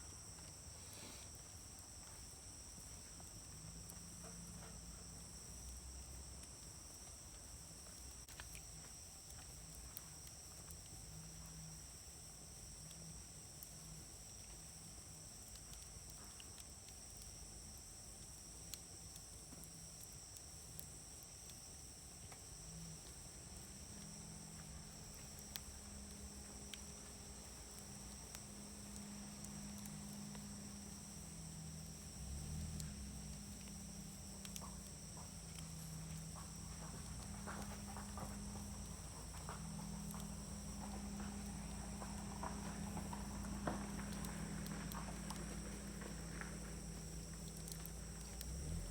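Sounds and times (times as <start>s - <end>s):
wood fire crackling: 5.1s - 48.9s
fire popping: 12.3s - 48.9s
high insect drone: 17.1s - 48.9s.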